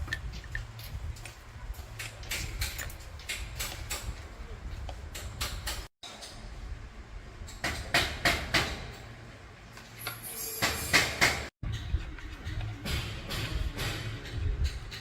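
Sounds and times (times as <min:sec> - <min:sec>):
sharp knocks on metal: 0:07.6 - 0:09.0, 0:12.4 - 0:15.0.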